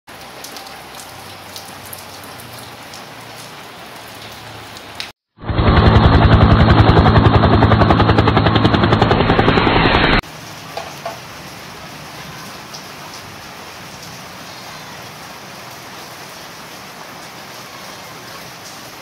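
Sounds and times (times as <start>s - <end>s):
throbbing intro sound effect: 5.4s - 10.2s.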